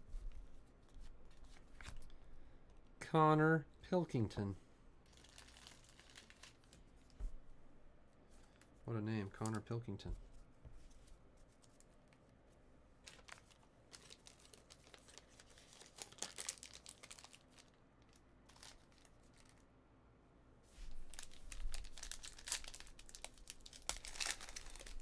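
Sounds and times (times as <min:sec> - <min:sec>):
foil wrapper crinkling and tearing: 0:05.1 - 0:06.8, 0:13.0 - 0:19.6, 0:21.0 - 0:25.0.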